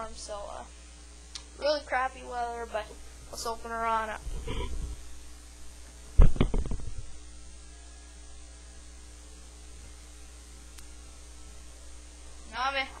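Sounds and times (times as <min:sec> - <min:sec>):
steady low hum: 0:00.0 - 0:13.0
loud knocks and thumps: 0:06.2 - 0:07.0.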